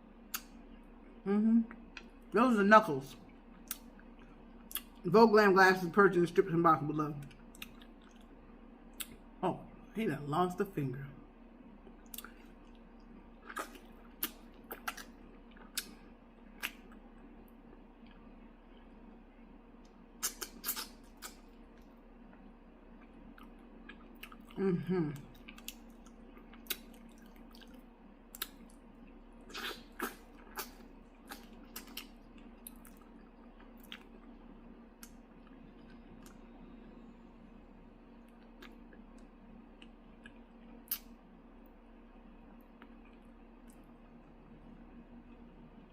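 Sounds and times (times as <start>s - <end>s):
steady low hum: 0.0s - 45.9s
person chewing wet smacks: 0.3s - 0.6s, 3.2s - 5.0s, 7.2s - 9.2s, 11.8s - 19.0s, 19.8s - 34.4s, 35.0s - 36.5s, 38.2s - 41.2s.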